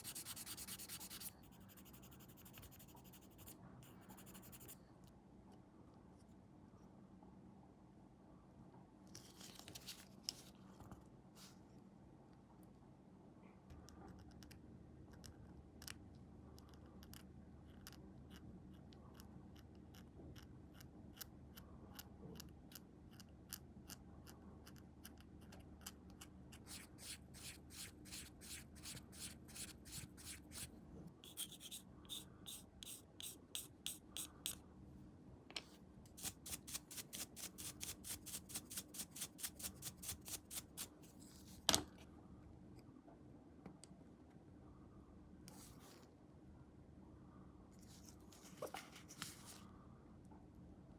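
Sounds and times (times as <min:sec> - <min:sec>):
sanding plastic part: 0:31.3 - 0:34.6, 0:36.2 - 0:40.9.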